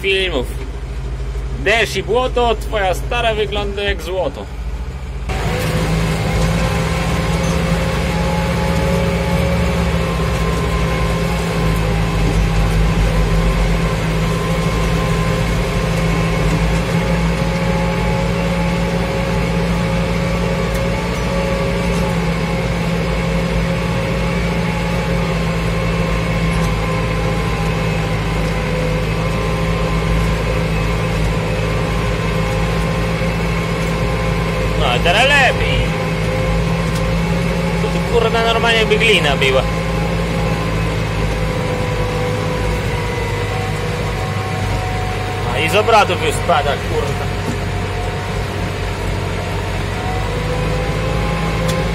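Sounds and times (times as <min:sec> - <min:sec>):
tractor diesel engine under load: 0:00.0 - 0:51.9.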